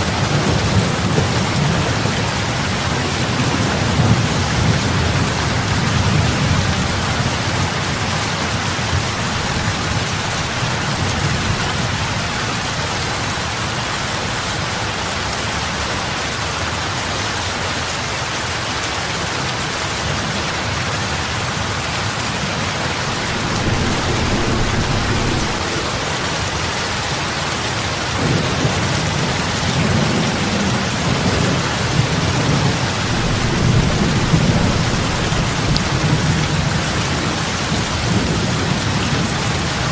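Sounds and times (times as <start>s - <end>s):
heavy rain on water: 0.0s - 39.9s
low rumble: 22.7s - 27.4s.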